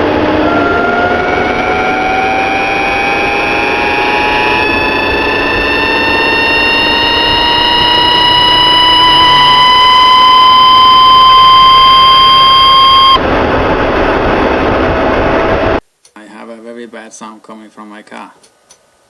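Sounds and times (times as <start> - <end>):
car drivetrain whine: 0.0 - 13.4.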